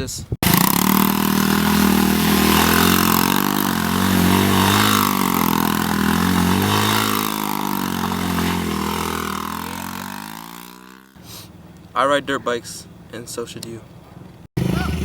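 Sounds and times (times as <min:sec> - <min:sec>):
dirt bike engine revving: 0:00.4 - 0:11.9, 0:14.6 - 0:15.0.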